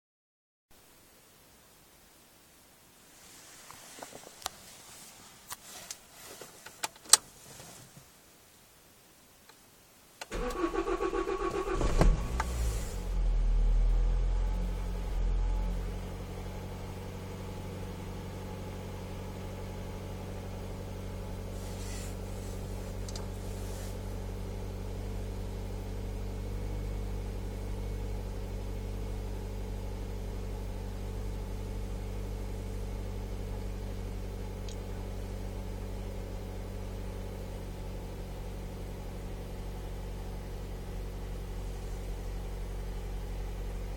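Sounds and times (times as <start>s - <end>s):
car engine idling: 10.3s - 43.9s.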